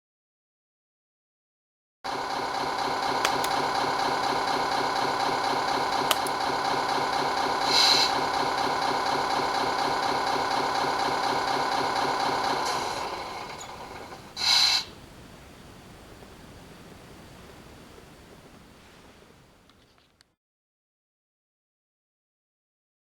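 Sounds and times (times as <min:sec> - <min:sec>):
simulated truck engine idling: 0:02.1 - 0:16.0
short hiss: 0:14.4 - 0:14.9.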